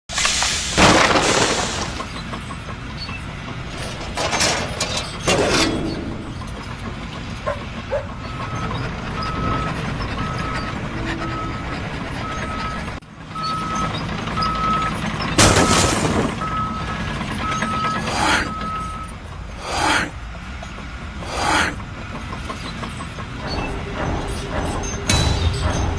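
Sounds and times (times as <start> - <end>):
loud hiss burst: 0.1 - 2.0
reversing alarm beeping: 8.0 - 19.2.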